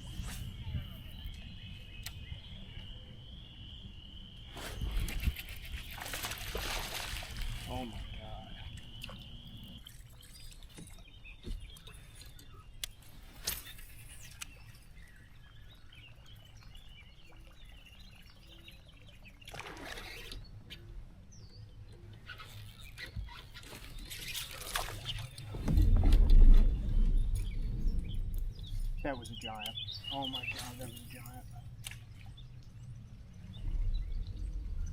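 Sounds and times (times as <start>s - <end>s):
faint bird chirps: 7.7s - 25.4s
loud low rumble: 25.6s - 29.2s.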